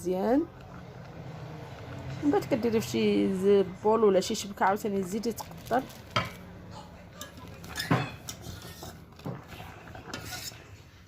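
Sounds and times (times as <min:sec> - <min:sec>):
clinks and knocks of kitchenware: 0:06.1 - 0:06.4, 0:07.2 - 0:08.4.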